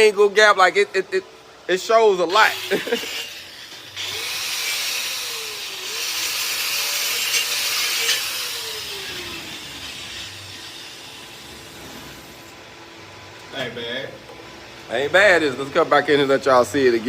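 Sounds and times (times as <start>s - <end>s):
power tool hissing: 2.3s - 12.5s
tool winding down hum: 2.3s - 12.6s.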